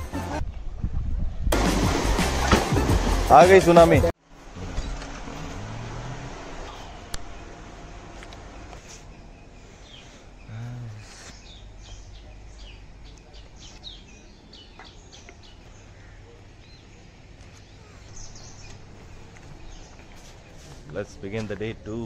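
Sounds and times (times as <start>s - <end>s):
birds chirping: 4.7s - 22.0s.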